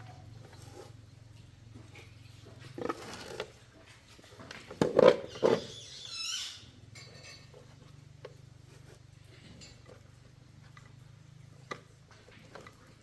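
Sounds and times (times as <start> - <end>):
wavering high squeak: 5.3 - 6.7.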